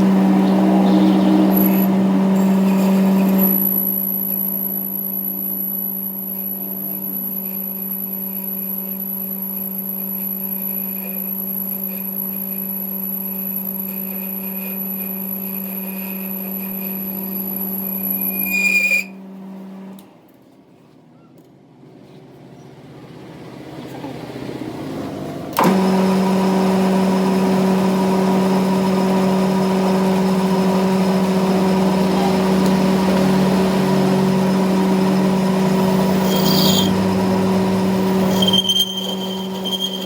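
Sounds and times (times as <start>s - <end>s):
steady machine hum: 0.0s - 19.9s, 24.8s - 40.0s.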